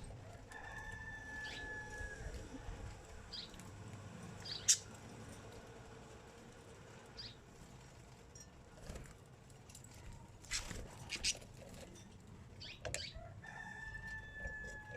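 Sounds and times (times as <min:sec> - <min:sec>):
rooster crowing: 0:00.2 - 0:02.4, 0:13.1 - 0:14.9
birds chirping: 0:04.4 - 0:05.0, 0:10.5 - 0:11.4, 0:12.6 - 0:13.2.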